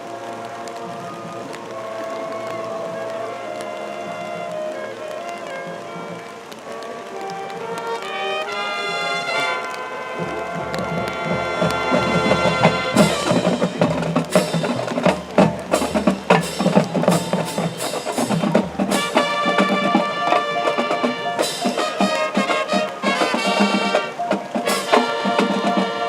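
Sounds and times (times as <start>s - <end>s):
marching band brass chords: 0.0s - 26.0s
sharp percussion strikes: 11.3s - 26.0s.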